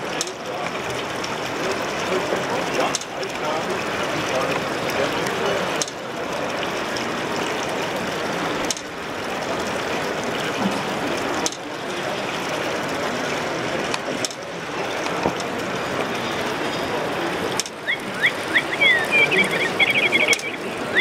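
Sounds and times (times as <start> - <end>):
crowd din: 9.3 - 21.0.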